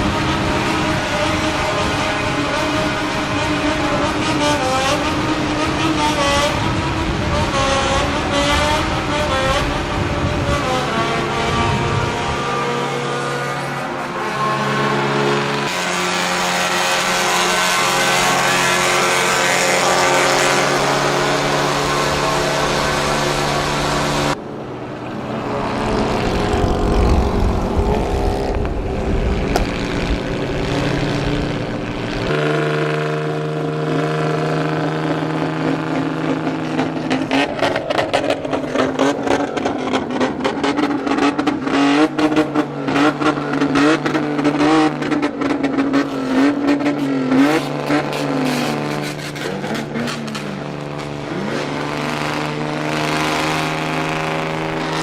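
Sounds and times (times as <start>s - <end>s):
engine revving: 0.0s - 24.4s, 25.0s - 55.0s
exhaust pops: 26.9s - 32.4s.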